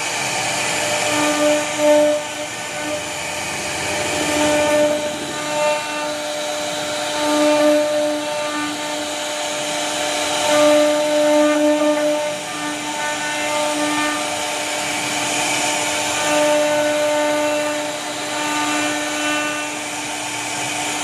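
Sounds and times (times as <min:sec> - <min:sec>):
router bit cutting wood: 0:00.0 - 0:21.0
router spindle whining: 0:00.0 - 0:21.0.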